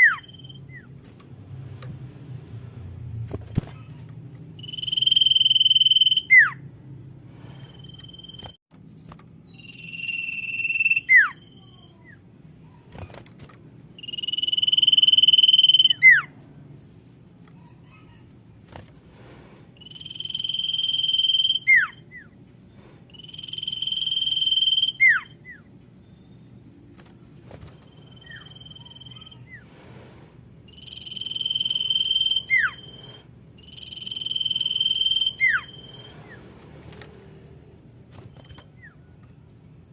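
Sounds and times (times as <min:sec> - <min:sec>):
bird whistled call: 0:00.0 - 0:00.9, 0:04.6 - 0:06.6, 0:09.5 - 0:11.9, 0:14.0 - 0:16.3, 0:19.8 - 0:22.3, 0:23.1 - 0:25.7, 0:27.9 - 0:29.6, 0:30.7 - 0:36.4.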